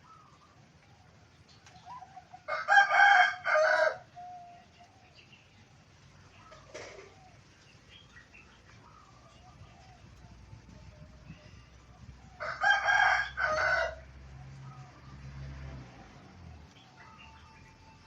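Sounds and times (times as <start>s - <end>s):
dove cooing: 0.0s - 15.4s
rooster crowing: 2.4s - 4.6s, 12.2s - 15.0s.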